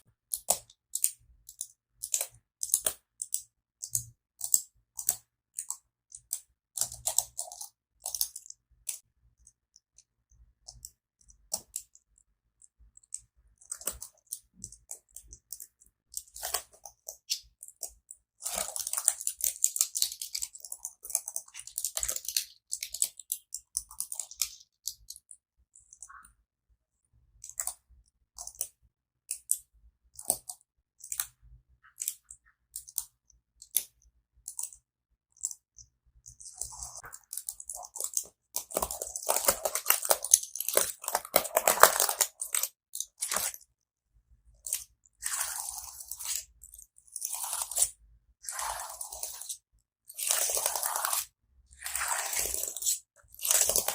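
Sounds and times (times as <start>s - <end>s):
keyboard keys clicking: 36.3s - 43.6s.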